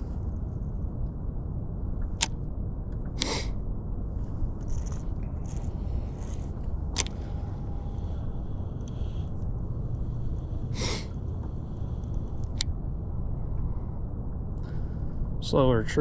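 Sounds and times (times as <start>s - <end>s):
low rumbling noise: 0.0s - 16.0s
sharp clicks: 4.7s - 10.4s, 11.8s - 12.7s.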